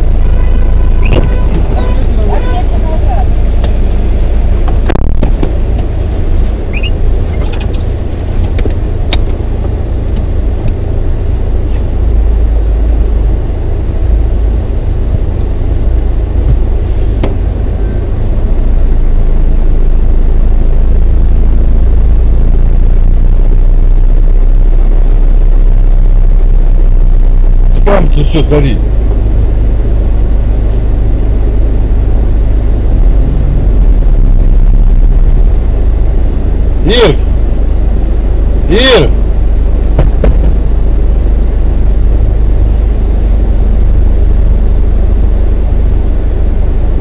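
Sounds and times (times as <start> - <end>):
car engine idling: 0.0 - 47.0.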